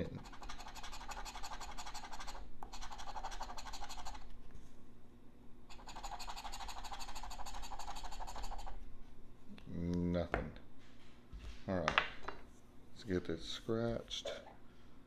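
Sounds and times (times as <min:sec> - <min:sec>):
scratching lottery ticket: 0:00.1 - 0:04.3, 0:05.7 - 0:08.8.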